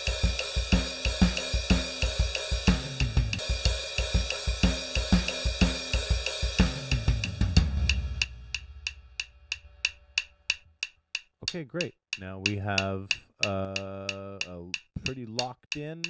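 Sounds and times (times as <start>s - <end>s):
digital drum kit groove: 0.0s - 10.6s
click track ticks: 8.2s - 16.0s.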